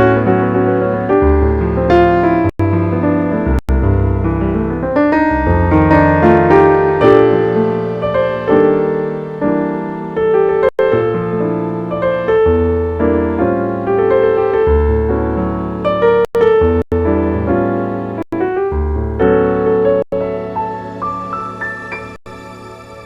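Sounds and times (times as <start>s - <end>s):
jazz piano playing: 0.0s - 23.0s.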